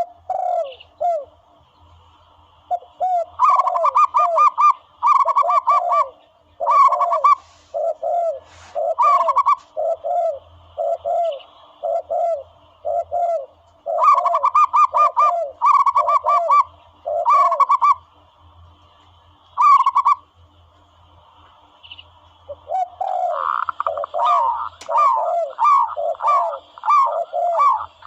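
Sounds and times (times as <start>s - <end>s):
clipped dove cooing: 0.0s - 1.3s, 2.7s - 18.0s, 19.6s - 20.2s, 22.5s - 28.0s
lower paired dove coos: 0.0s - 1.4s, 2.7s - 18.0s, 19.6s - 20.3s, 22.5s - 28.0s.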